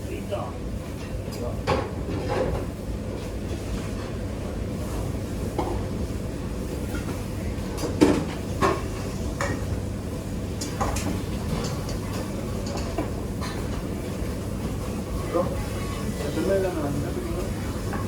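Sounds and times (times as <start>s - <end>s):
utensils and dishes clinking: 10.6s - 13.9s.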